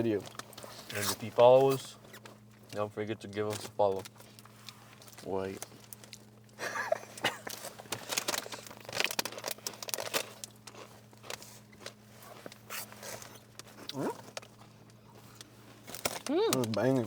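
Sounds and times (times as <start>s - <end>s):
steady low hum: 0.0s - 17.0s
packaging crinkling: 7.5s - 17.0s.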